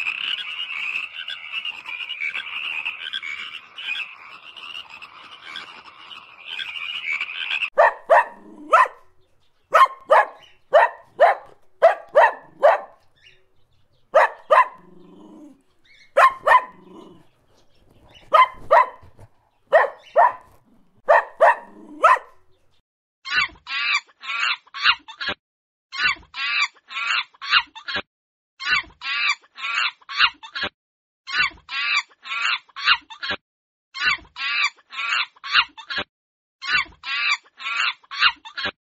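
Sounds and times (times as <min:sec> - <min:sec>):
animal calling rapidly: 0:00.0 - 0:22.6
dog barking: 0:07.8 - 0:13.2, 0:14.1 - 0:17.3, 0:18.0 - 0:22.7.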